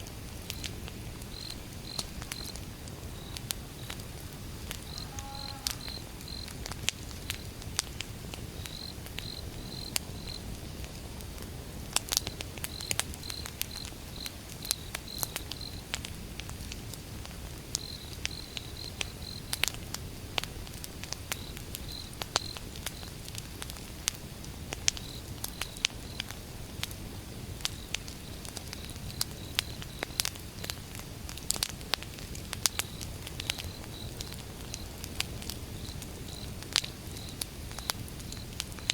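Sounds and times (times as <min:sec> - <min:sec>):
campfire crackling and popping: 0:00.0 - 0:38.9
cricket chirping: 0:00.5 - 0:07.5, 0:08.6 - 0:10.5, 0:12.3 - 0:15.9, 0:17.8 - 0:19.6, 0:21.4 - 0:23.1, 0:25.0 - 0:26.3, 0:27.7 - 0:30.3, 0:32.6 - 0:35.0, 0:35.7 - 0:38.9.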